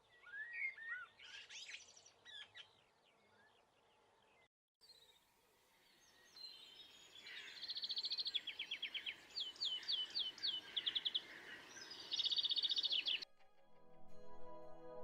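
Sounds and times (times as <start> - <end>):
faint outdoor background noise: 0.0 - 13.2
songbird singing trills and whistles: 0.1 - 2.8, 6.2 - 13.2.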